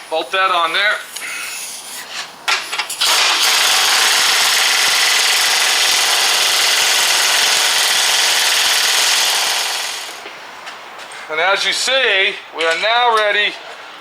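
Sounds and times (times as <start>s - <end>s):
power wrench running: 2.9s - 10.3s.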